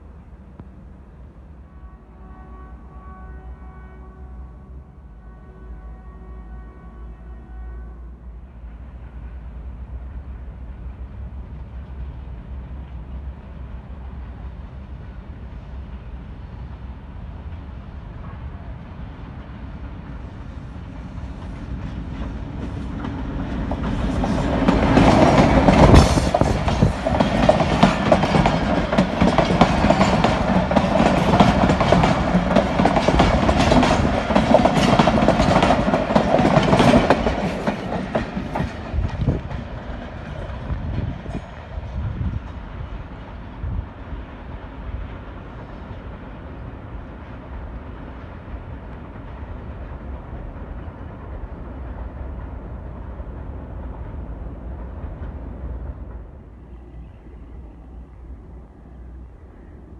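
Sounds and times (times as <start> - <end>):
train wheels clickety-clack: 19.2 - 43.5.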